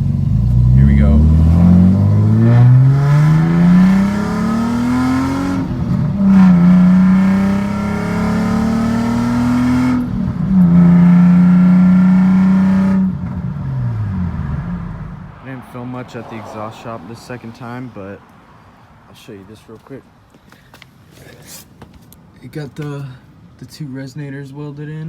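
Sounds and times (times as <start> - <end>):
car engine accelerating hard: 0.0 - 17.3.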